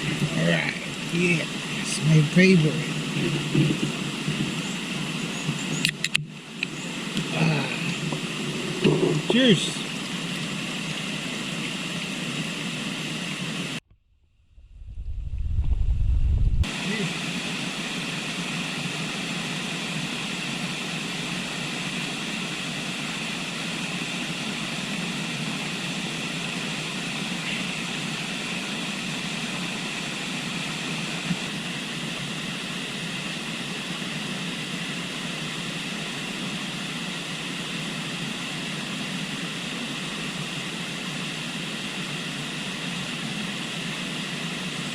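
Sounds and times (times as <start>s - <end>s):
river water rushing: 0.0s - 13.8s
loud low rumble: 14.2s - 16.7s.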